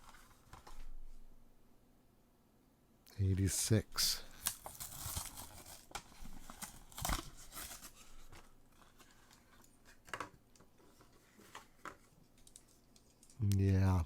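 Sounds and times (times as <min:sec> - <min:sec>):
crinkling and rustling: 0:00.0 - 0:01.2, 0:04.2 - 0:13.7.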